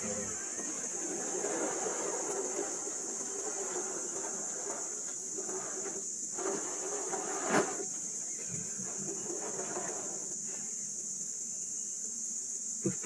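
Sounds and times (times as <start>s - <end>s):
electric motor whirring: 0.0s - 6.0s
steady high hiss: 0.0s - 13.0s.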